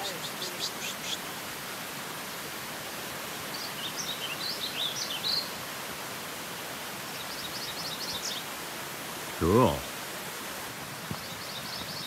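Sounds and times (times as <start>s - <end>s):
birds singing: 0.0s - 1.3s, 3.4s - 5.6s, 7.1s - 8.5s, 11.0s - 12.0s
stream rushing: 0.0s - 12.0s.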